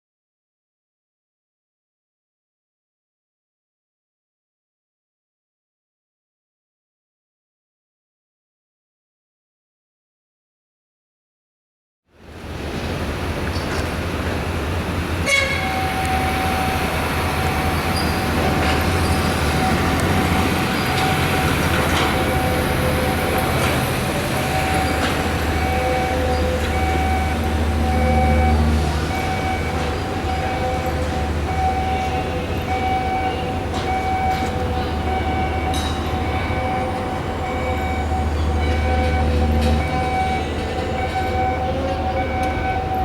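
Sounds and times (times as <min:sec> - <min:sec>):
alarm steady tone: 0:15.3 - 0:43.0
higher tone beeping: 0:15.7 - 0:43.0.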